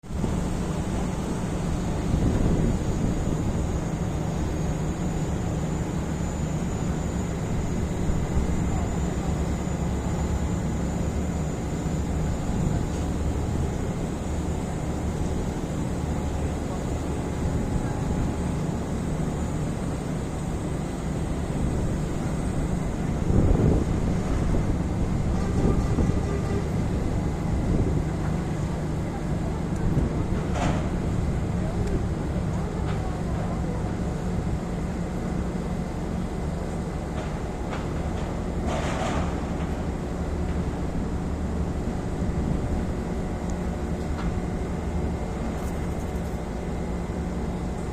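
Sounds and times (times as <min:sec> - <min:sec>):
boat engine rumbling: 0:00.0 - 0:35.7
wind: 0:00.0 - 0:47.9.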